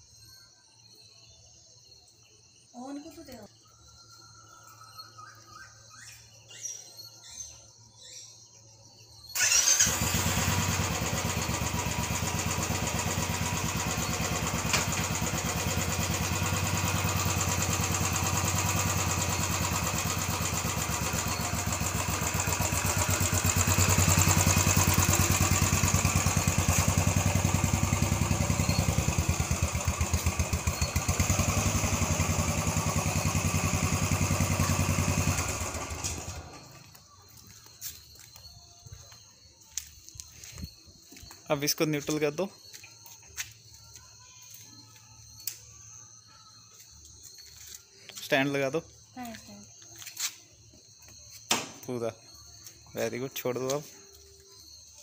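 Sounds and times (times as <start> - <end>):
single-cylinder engine running: 9.4 - 37.0.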